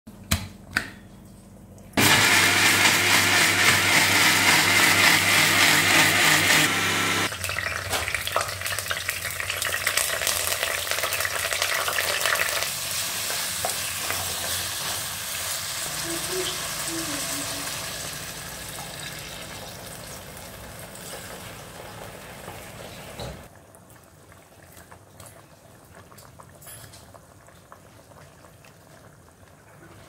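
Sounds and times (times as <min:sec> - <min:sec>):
food frying in hot oil: 0:07.3 - 0:30.0.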